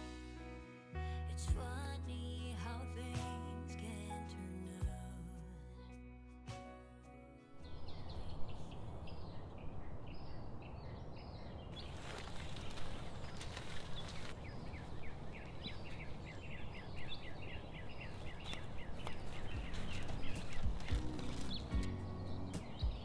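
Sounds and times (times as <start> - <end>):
small birds chirping: 7.6 - 23.0.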